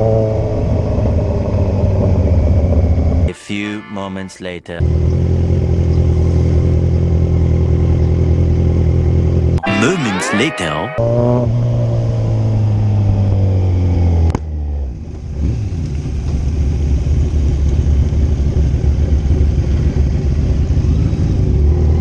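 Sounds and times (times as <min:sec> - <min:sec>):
wind: 0:00.0 - 0:03.3, 0:04.7 - 0:09.6, 0:11.0 - 0:22.0
motorcycle engine: 0:04.8 - 0:09.6.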